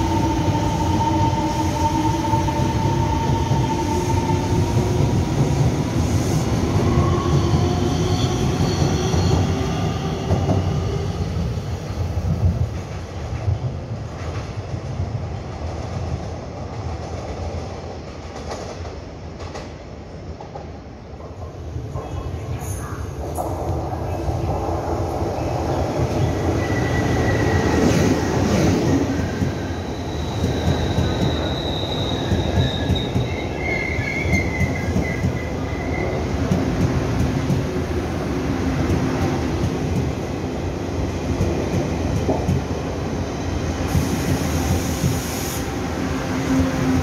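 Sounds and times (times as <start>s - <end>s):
train wheels rumbling on rails: 0.0s - 47.0s
high hiss: 43.8s - 46.1s.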